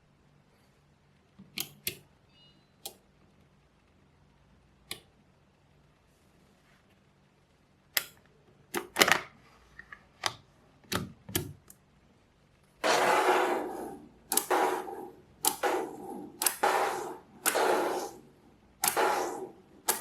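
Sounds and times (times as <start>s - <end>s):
magnetic balls rattling: 12.8s - 18.2s
magnetic balls clicking: 12.8s - 20.0s.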